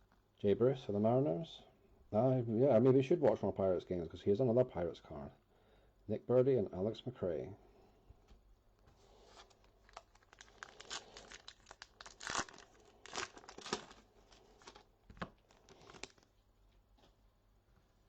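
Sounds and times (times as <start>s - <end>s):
wrapper crinkling: 9.2s - 16.4s
wrapper ripping and crackling: 9.2s - 16.4s.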